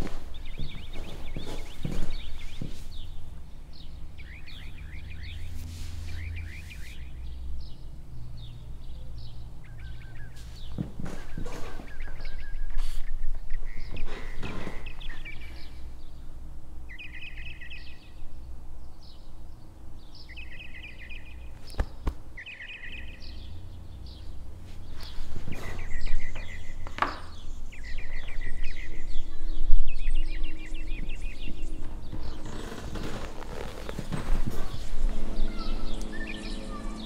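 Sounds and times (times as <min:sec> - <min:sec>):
birds chirping and trilling: 0:00.0 - 0:37.0
low background rumble: 0:23.0 - 0:37.0.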